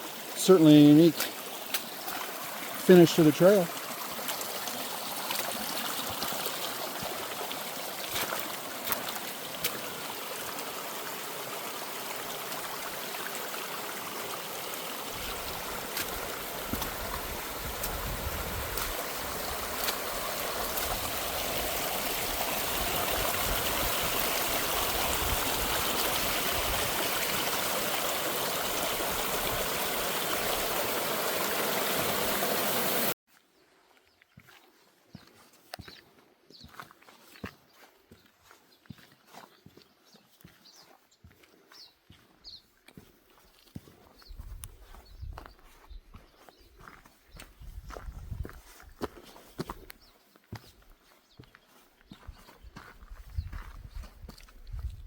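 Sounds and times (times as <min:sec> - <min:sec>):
water rushing over rocks: 0:00.0 - 0:33.2.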